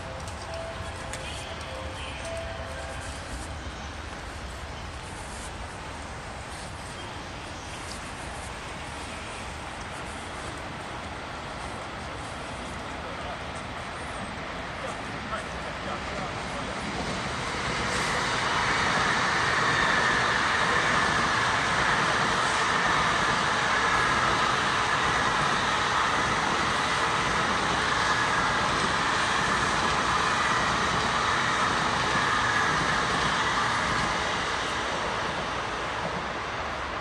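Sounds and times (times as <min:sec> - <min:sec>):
high-speed train passing: 0:00.0 - 0:37.0.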